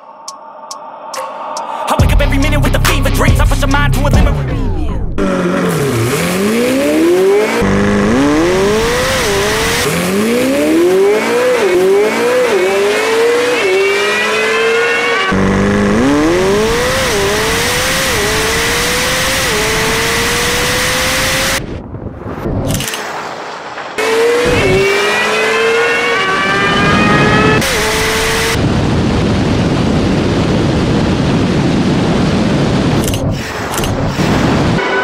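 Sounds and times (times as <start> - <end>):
race car engine accelerating: 3.6 - 21.7, 24.0 - 29.0.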